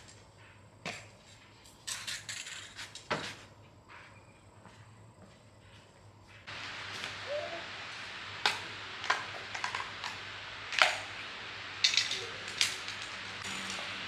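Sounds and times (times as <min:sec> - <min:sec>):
steady hiss: 0:04.7 - 0:14.0.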